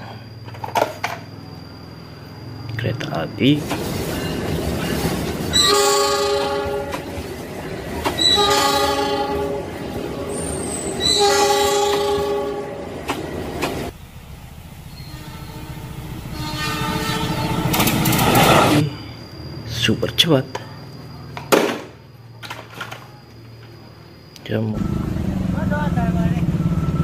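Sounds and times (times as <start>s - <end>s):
passenger train passing: 0.0s - 22.4s
wheels clattering over rails: 3.4s - 14.0s, 17.4s - 18.8s
locomotive air horn chord: 5.5s - 7.1s, 8.2s - 12.9s, 15.0s - 17.9s
faint distant locomotive horn: 5.5s - 13.0s, 14.9s - 18.0s.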